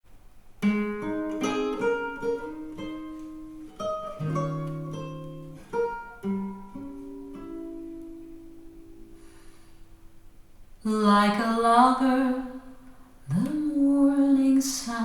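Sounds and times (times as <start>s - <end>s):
acoustic guitar plucked notes: 0.6s - 10.3s.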